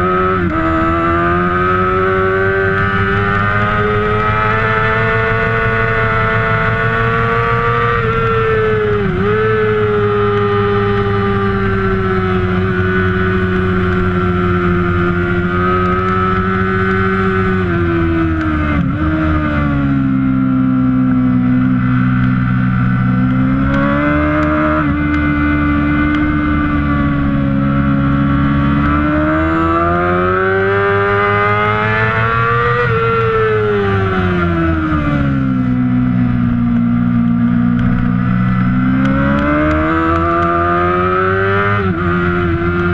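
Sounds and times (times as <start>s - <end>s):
race engine revving through gears: 37.8s - 42.9s.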